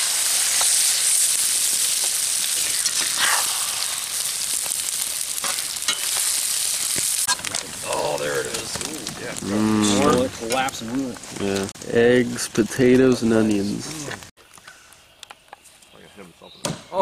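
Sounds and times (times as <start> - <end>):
eggs sizzling in a skillet: 0.0 - 11.8.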